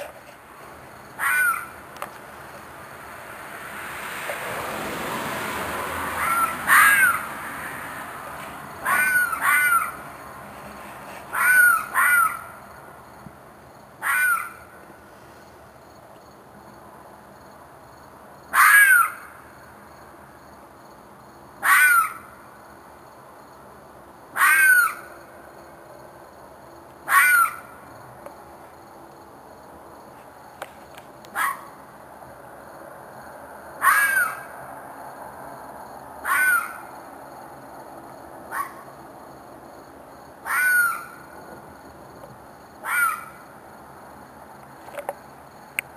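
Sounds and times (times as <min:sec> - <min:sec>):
animal screeching calls: 0:01.2 - 0:01.8, 0:06.1 - 0:07.8, 0:08.8 - 0:10.1, 0:11.3 - 0:12.6, 0:14.0 - 0:14.6, 0:18.6 - 0:19.3, 0:21.6 - 0:22.3, 0:24.4 - 0:25.1, 0:27.1 - 0:27.7, 0:33.8 - 0:34.5, 0:36.2 - 0:36.9, 0:38.5 - 0:38.8, 0:40.4 - 0:41.2, 0:42.8 - 0:43.4.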